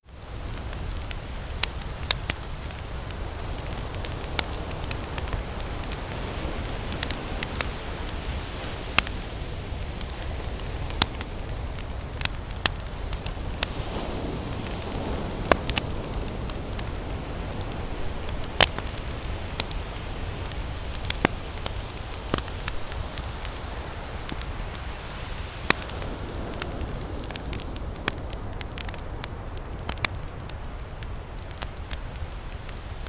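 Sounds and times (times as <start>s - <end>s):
campfire crackling and popping: 0.0s - 33.0s
steady low rumble: 0.2s - 25.0s.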